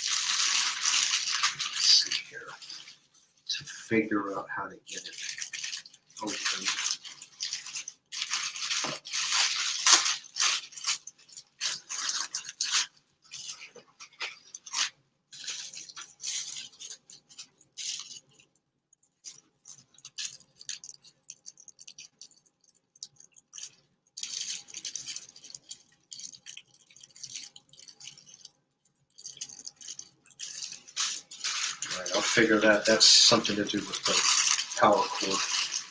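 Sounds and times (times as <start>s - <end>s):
packaging rustling and crinkling: 0.0s - 4.0s, 4.9s - 18.5s, 19.2s - 35.9s.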